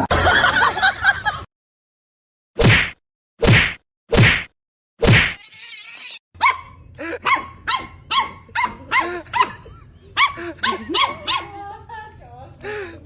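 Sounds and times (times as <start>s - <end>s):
sharp whack: 2.6s - 5.4s
dog barking: 6.4s - 11.6s.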